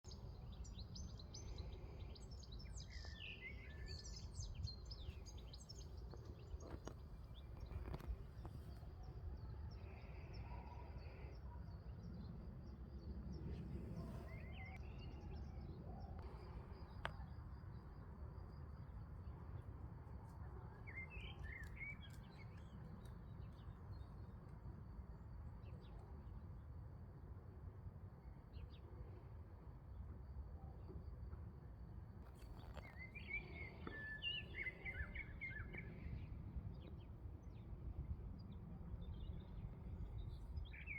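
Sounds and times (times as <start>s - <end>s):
wild birds chirping: 0.0s - 12.4s, 32.3s - 37.6s, 38.4s - 40.9s.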